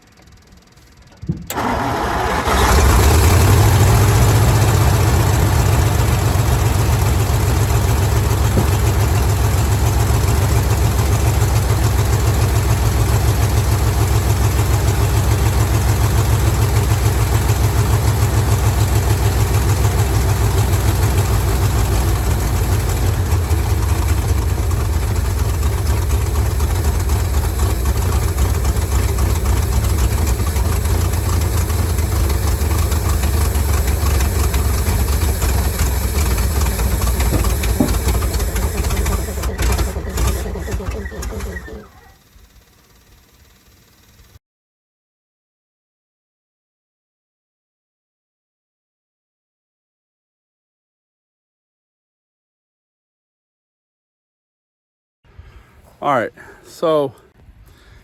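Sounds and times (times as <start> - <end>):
truck engine starting and running: 0.0 - 44.4.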